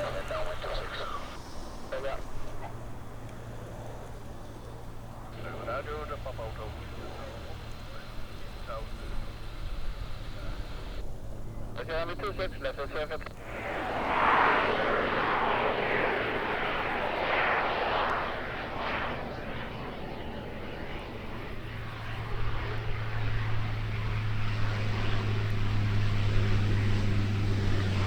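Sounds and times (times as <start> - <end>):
propeller aircraft engine drone: 0.0 - 28.0
broad rushing sound: 13.4 - 19.9.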